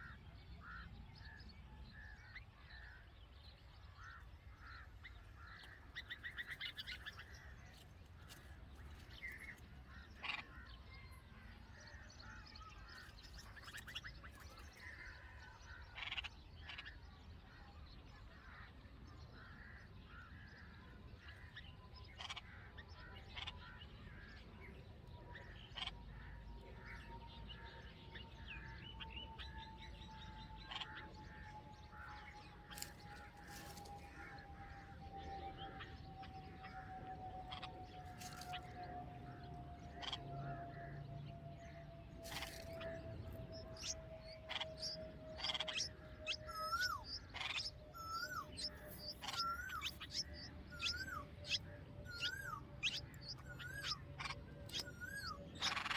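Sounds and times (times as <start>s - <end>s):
birds chirping: 0.0s - 55.9s
rapid buzzy bird trill: 43.4s - 55.9s.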